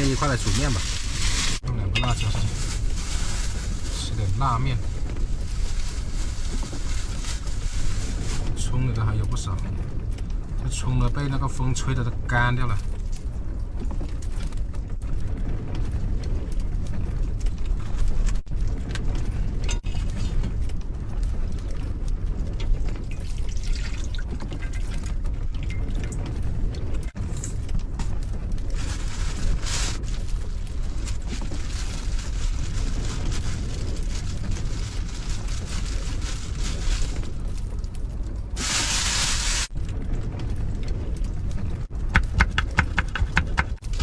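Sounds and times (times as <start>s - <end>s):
water in a cooking pot: 21.6s - 26.4s
gale buffeting a van: 24.3s - 44.0s.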